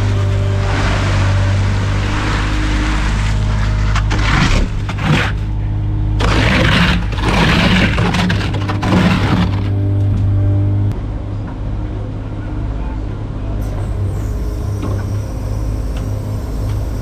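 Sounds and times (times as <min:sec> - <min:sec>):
concrete scraping and rushing: 0:00.0 - 0:10.1
large engine running: 0:00.0 - 0:17.0.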